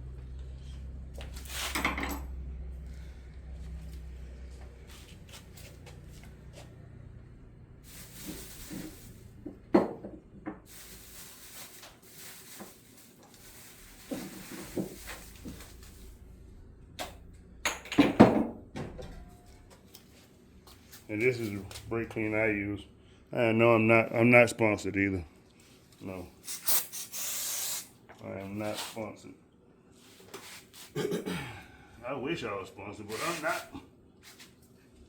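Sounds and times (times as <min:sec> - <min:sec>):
tools knocking and clattering: 0:01.7 - 0:02.4, 0:17.0 - 0:19.4.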